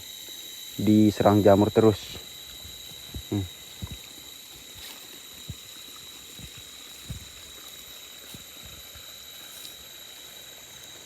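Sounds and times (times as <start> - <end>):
steady hiss: 0.0 - 11.0
high-pitched drone: 0.6 - 4.0
soft low thumps: 3.1 - 4.0.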